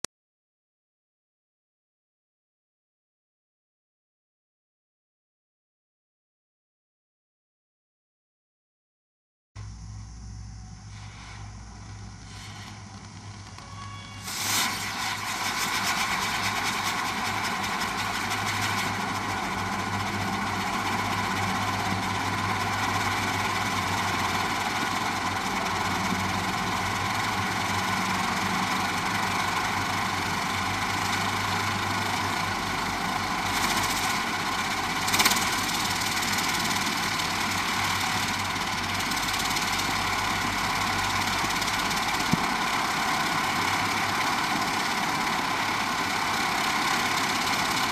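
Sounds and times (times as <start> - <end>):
firework rushing spray: 10.9 - 47.9.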